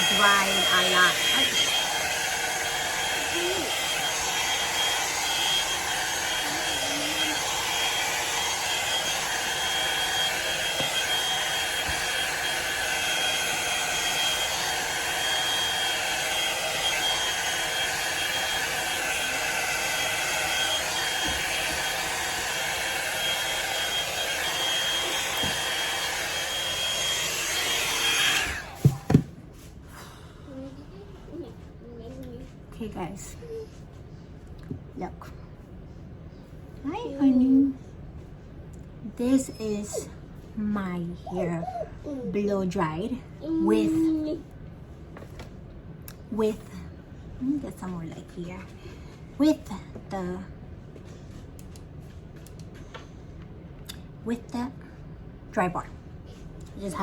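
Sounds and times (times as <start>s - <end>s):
blow-dryer brush running: 0.0s - 29.4s.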